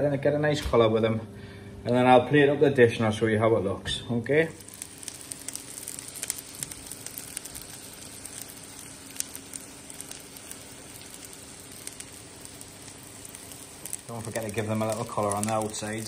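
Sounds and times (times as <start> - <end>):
fish cakes sizzling in oil: 4.5 - 16.0.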